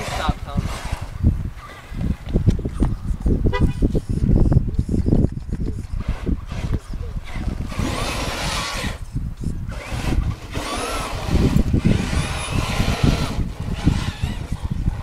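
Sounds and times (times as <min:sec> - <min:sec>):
toy truck electric motor whining: 0:05.8 - 0:15.0.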